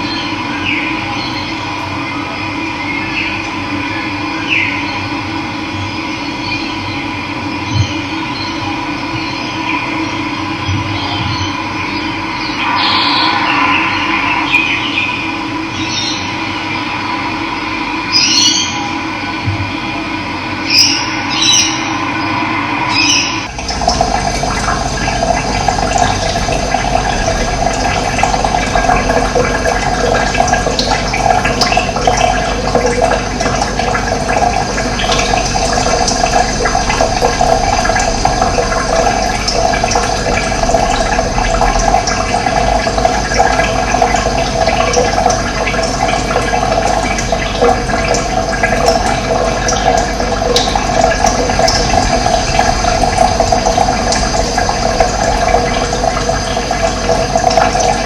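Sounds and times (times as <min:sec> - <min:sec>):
running water rushing: 0:12.2 - 0:17.1, 0:20.7 - 0:58.0.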